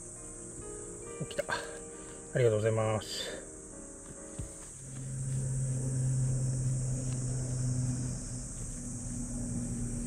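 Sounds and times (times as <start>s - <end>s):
insects droning: 0.0s - 10.0s
car engine running: 4.5s - 10.0s.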